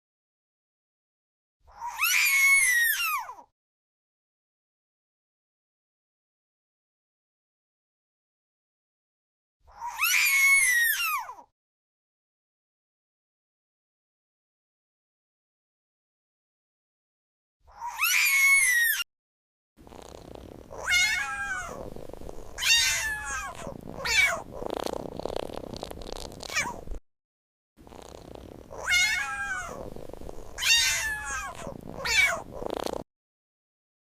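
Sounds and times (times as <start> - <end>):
cat meowing: 1.7 - 3.4, 9.7 - 11.4, 17.7 - 19.0, 20.7 - 24.7, 26.4 - 27.0, 28.7 - 32.6.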